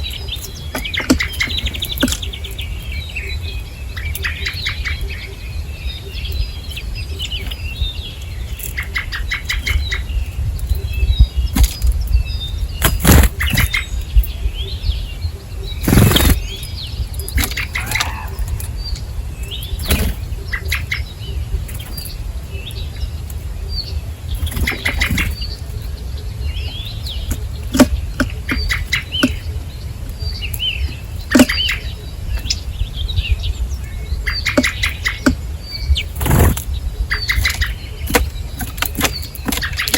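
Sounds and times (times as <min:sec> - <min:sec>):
small birds chirping: 0:00.0 - 0:39.9
wingbeats fluttering: 0:15.6 - 0:22.3, 0:23.3 - 0:26.1, 0:36.0 - 0:39.9.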